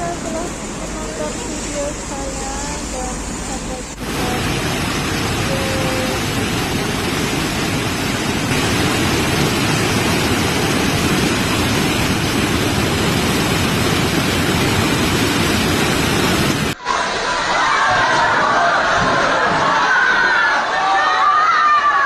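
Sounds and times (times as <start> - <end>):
heavy rain falling: 3.7 - 16.8.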